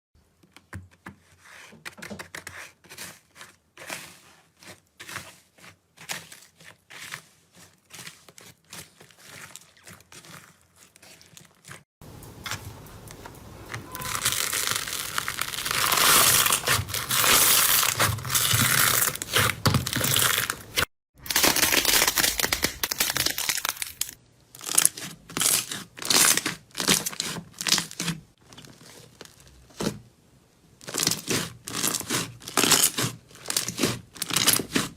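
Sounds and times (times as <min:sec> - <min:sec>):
crunchy slime crackling: 0:05.1 - 0:29.8.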